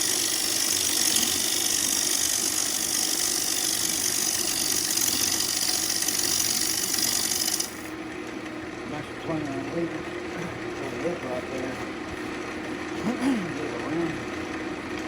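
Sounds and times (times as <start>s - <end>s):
wood being cut on lathe: 0.0s - 8.0s
lathe motor humming: 0.0s - 15.0s.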